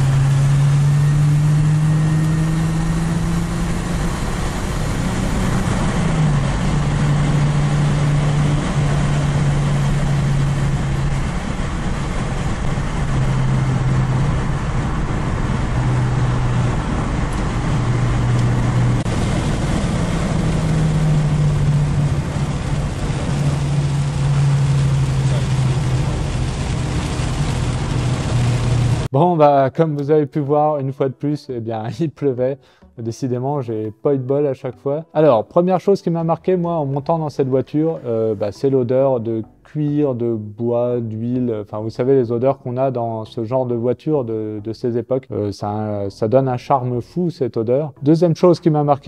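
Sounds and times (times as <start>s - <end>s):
car engine droning in cabin: 0.0s - 29.1s
tyres hissing on wet road: 0.0s - 29.1s.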